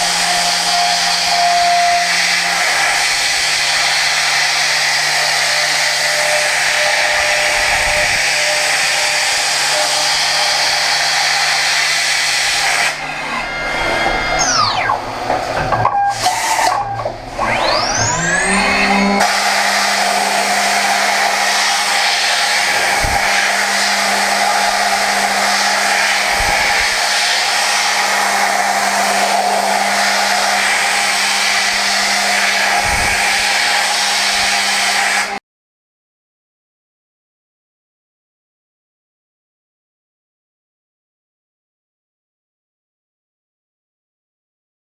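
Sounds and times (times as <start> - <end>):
high-speed milling hiss: 0.0 - 15.3, 19.2 - 35.4
machining spindle whine: 0.0 - 35.4.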